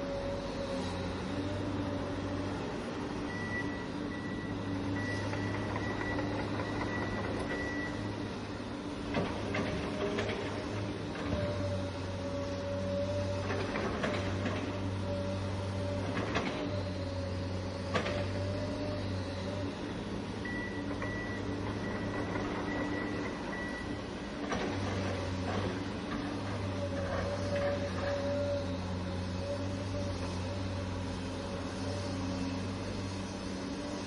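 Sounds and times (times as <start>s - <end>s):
toy excavator motors whining: 9.5s - 33.0s.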